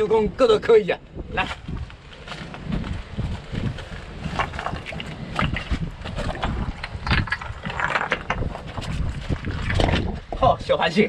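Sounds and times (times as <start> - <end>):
strong wind buffeting microphone: 0.0 - 11.0
water splashing and stones knocking: 3.6 - 10.4.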